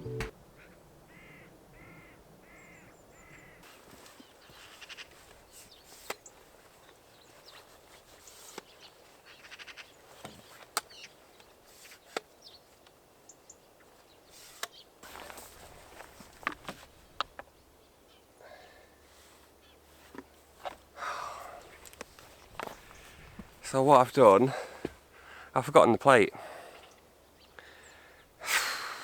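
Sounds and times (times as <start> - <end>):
sharp clicks and taps: 0.0 - 0.3
crow cawing: 1.1 - 3.6.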